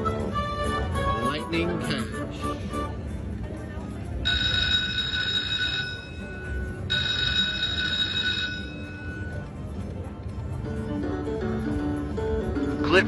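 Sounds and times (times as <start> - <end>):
low casino din: 0.0 - 13.0
slot machine jackpot bell: 4.2 - 9.6.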